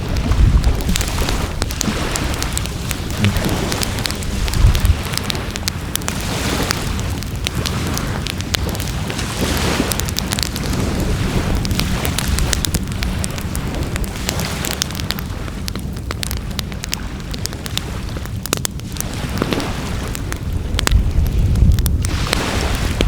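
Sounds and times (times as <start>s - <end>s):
low rumble: 0.0s - 8.4s
wood fire crackling: 0.0s - 23.0s.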